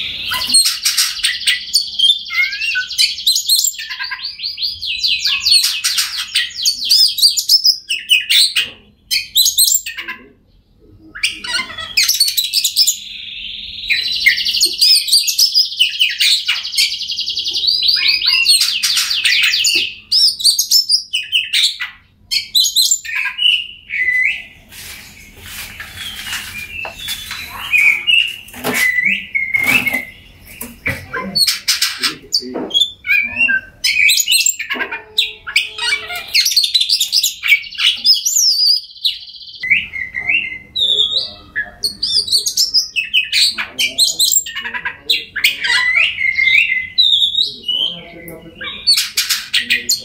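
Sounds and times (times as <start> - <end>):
bird singing whistled phrases: 0.0 - 5.7, 11.2 - 24.5, 26.0 - 32.2, 32.8 - 44.6
buzzy bird trill: 11.2 - 48.0.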